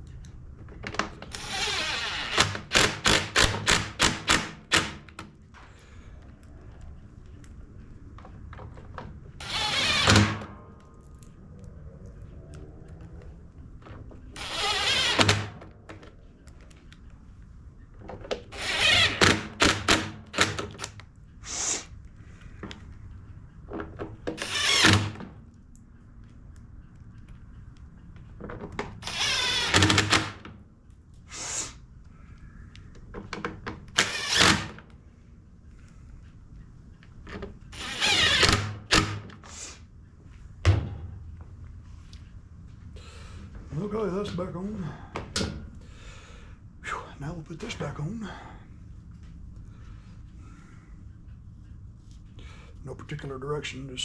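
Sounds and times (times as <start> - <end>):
power drill driving screws: 1.3 - 5.1, 9.4 - 10.5, 14.4 - 15.6, 18.5 - 20.9, 24.4 - 25.2, 29.0 - 30.4, 33.9 - 34.8, 37.7 - 39.2.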